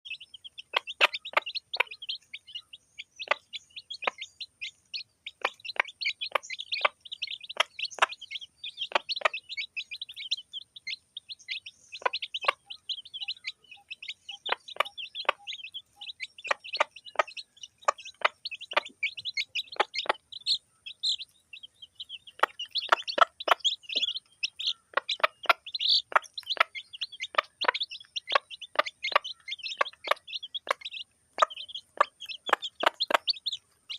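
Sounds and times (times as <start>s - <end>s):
chicks peeping: 0.1s - 33.9s
sharp taps of pecking: 31.4s - 33.4s.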